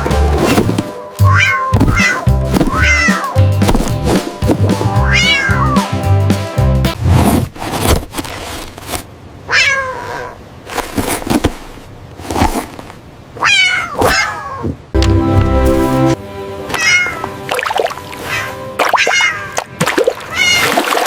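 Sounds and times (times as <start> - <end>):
background music: 0.0 - 7.0, 15.0 - 19.0
kitten meowing: 1.3 - 3.4, 5.0 - 5.8, 9.5 - 10.4, 13.4 - 14.6, 16.8 - 17.2.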